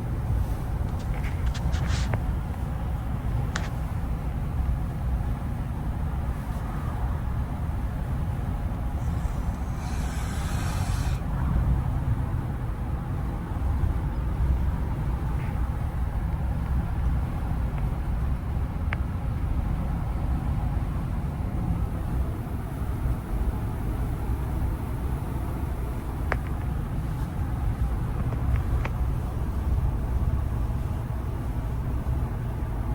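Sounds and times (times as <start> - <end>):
truck engine rumble: 0.0 - 18.3
short hiss: 9.0 - 11.2.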